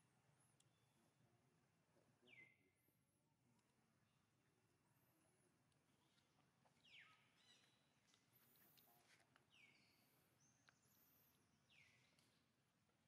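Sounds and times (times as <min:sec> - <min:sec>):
faint high bird chirps: 0:02.2 - 0:02.7, 0:06.8 - 0:07.9, 0:09.5 - 0:12.4.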